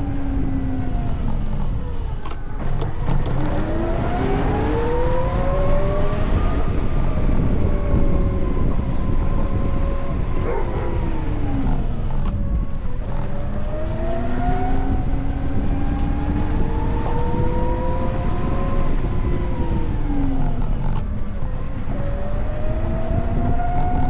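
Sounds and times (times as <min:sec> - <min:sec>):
electric motor whine: 0:00.0 - 0:24.0
wind and road noise rumble: 0:00.0 - 0:24.0.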